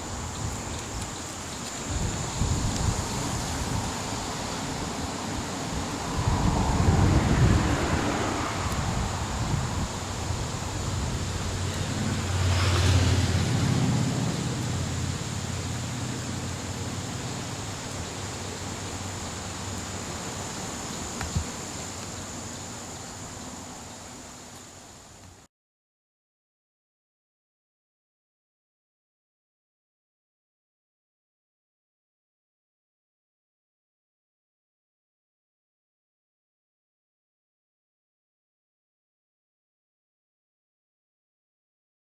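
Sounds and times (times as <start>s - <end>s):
wind noise on microphone: 0.0s - 17.3s, 20.5s - 21.7s
passing vehicle rumble: 0.0s - 24.8s.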